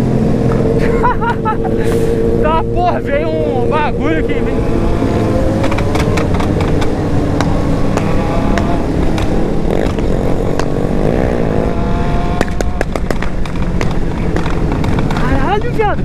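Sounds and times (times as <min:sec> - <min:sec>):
motorcycle engines revving: 0:00.0 - 0:16.0
sharp crackling pops: 0:12.4 - 0:15.7.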